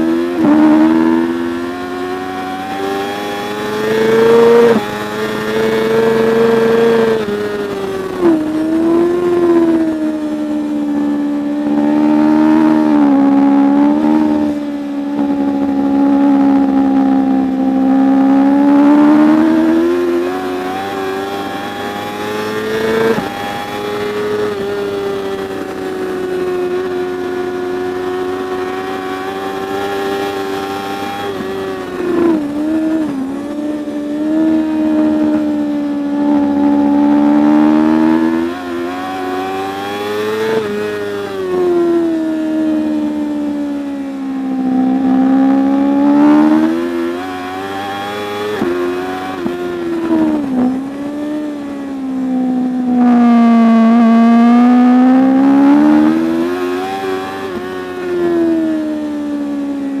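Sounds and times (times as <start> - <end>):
racing motorcycle engine revving: 0.0 - 60.0.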